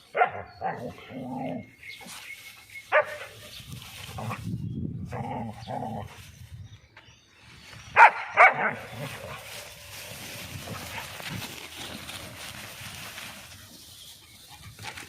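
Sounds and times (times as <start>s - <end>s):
dog barking sharply: 8.0s - 8.7s.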